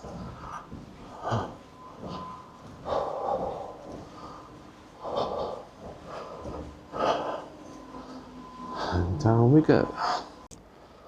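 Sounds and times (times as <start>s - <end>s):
man breathing heavily: 0.0s - 9.2s, 9.8s - 11.0s.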